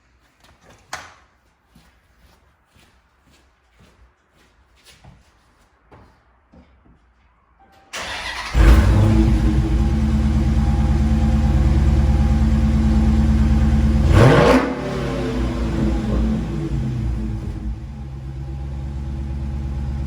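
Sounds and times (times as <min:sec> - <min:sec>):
car engine starting and idling: 0:08.0 - 0:20.0
engine revving: 0:08.0 - 0:20.0.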